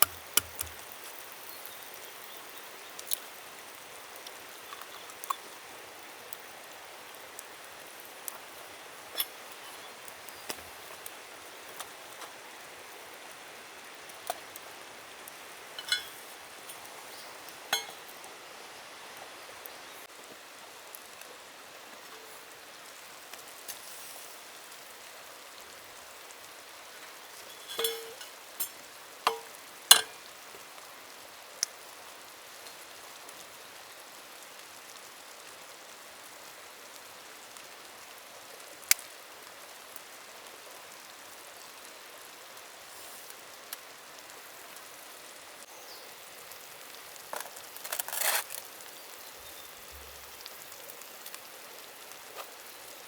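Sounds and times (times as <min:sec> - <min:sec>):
sharp clicks and clinks: 0:00.0 - 0:00.8, 0:15.8 - 0:18.1, 0:27.4 - 0:30.1.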